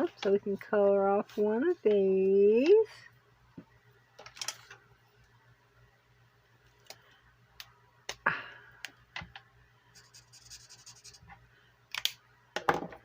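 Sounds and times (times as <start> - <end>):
pen scratching on paper: 10.0 - 11.2.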